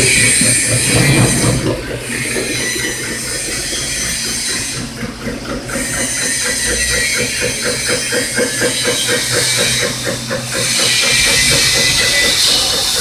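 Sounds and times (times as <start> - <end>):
milling machine cutting metal: 0.0 - 13.0.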